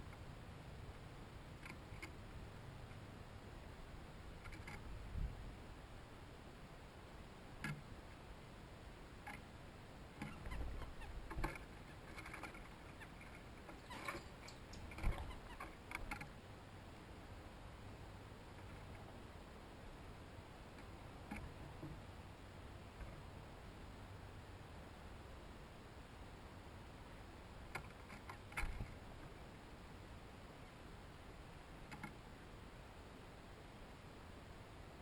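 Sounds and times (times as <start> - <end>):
small animals scratching on feeder: 10.2 - 16.3.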